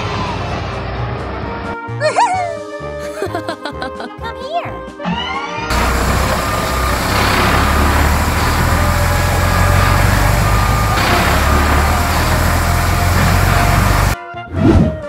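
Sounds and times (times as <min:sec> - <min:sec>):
diesel engine rumbling: 0:05.7 - 0:14.2
gravel pouring out: 0:05.7 - 0:14.2.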